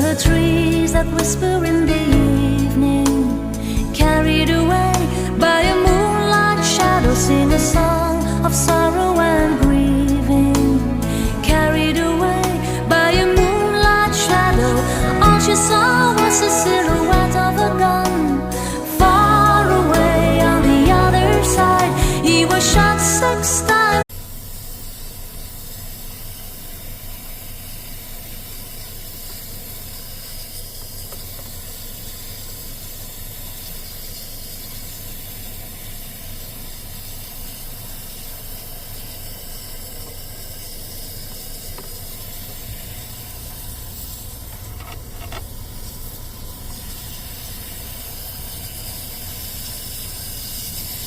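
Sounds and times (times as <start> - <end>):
rushing air hiss: 0.0 - 51.0
low rumble: 0.3 - 24.0.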